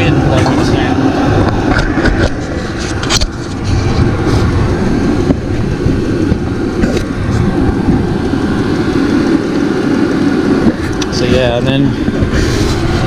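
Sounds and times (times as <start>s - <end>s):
air heater burning and fan: 0.0s - 13.0s
sharp clicks and knocks: 1.4s - 4.1s.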